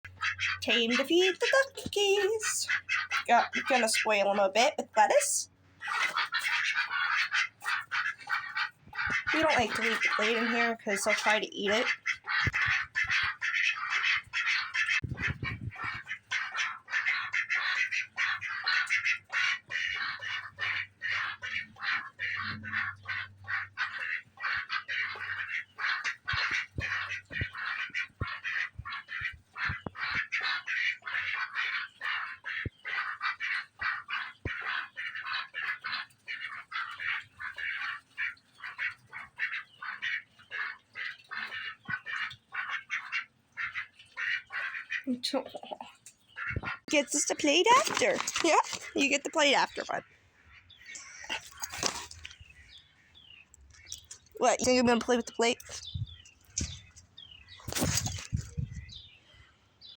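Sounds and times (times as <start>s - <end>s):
duck bills dabbling and clattering: 0.1s - 59.2s
ducks quacking: 0.1s - 59.2s.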